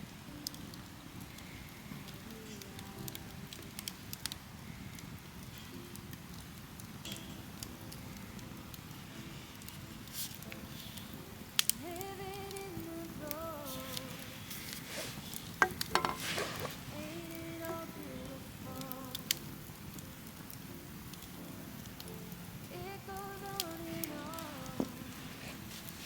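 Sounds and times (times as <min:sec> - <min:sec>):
campfire crackling: 0:00.0 - 0:26.0
sharp pops or clicks: 0:09.6 - 0:12.7, 0:13.3 - 0:25.2.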